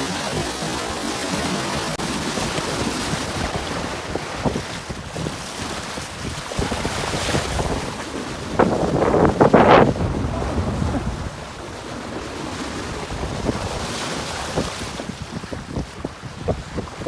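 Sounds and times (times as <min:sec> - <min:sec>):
water rushing past boat: 0:00.0 - 0:17.0
wind buffeting microphone: 0:00.0 - 0:17.0.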